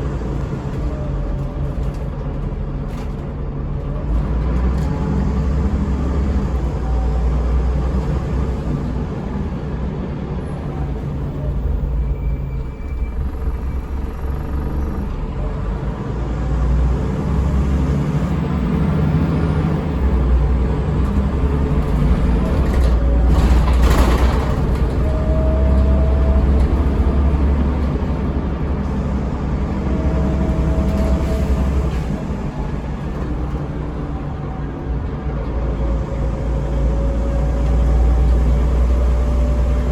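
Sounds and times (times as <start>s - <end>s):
bus engine drone: 0.0s - 39.9s
rising engine tones: 10.6s - 39.9s.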